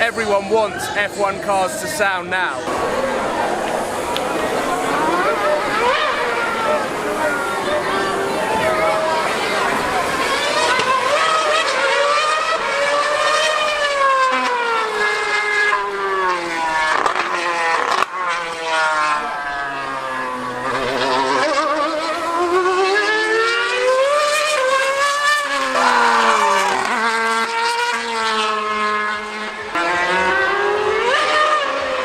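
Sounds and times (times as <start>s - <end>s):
racing car engine screaming: 0.0s - 32.0s.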